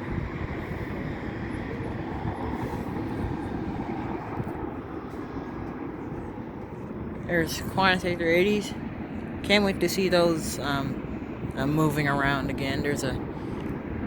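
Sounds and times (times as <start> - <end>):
distant jet engines rumbling: 0.0 - 14.0.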